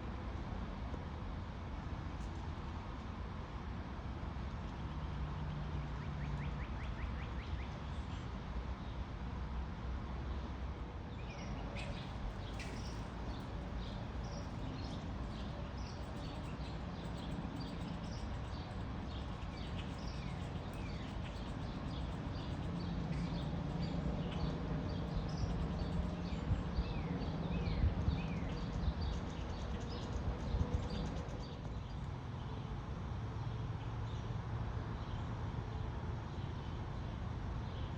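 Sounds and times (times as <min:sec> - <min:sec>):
small birds chirping: 0:11.7 - 0:32.0.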